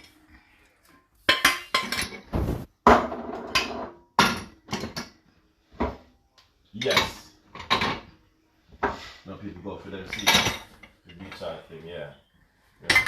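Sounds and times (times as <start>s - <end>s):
dishes and cutlery clattering: 1.3s - 2.3s, 6.8s - 8.1s, 10.0s - 11.5s.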